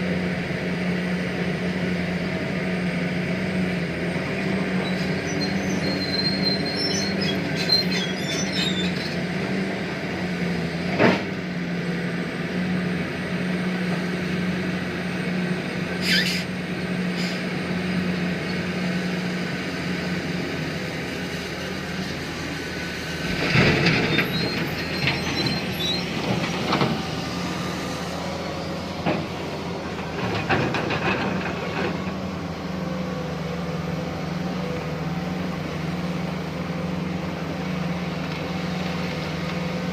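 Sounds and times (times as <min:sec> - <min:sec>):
excavator diesel engine humming: 0:00.0 - 0:39.9
high squeal: 0:04.8 - 0:09.2, 0:16.0 - 0:16.5, 0:24.0 - 0:26.8.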